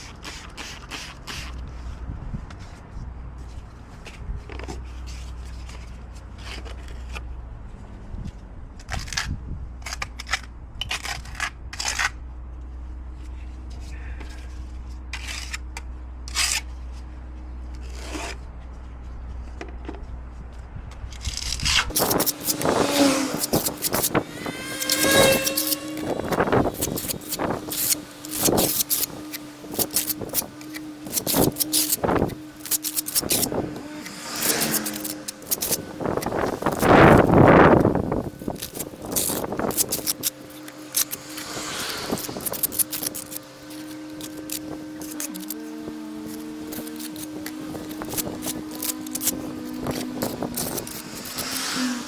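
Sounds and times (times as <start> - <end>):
trowel scraping cement: 0.0 - 1.9, 8.9 - 12.2, 15.2 - 16.8, 17.8 - 18.4, 21.2 - 52.0
squeaks: 21.2 - 52.0.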